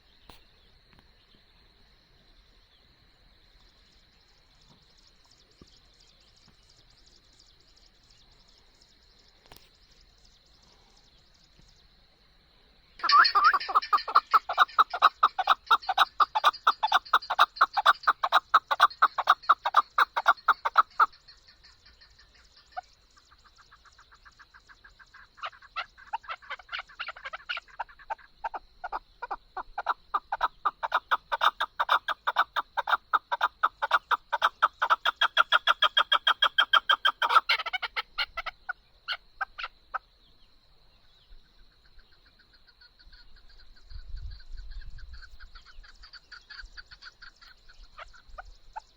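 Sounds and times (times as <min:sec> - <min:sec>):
partridge clucking calls: 0:13.0 - 0:40.1, 0:42.1 - 0:48.9.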